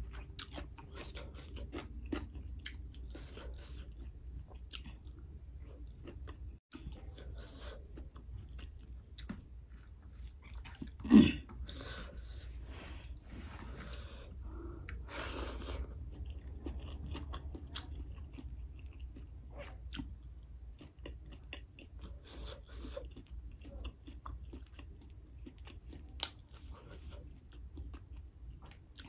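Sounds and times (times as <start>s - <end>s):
person chewing: 0.0s - 29.0s.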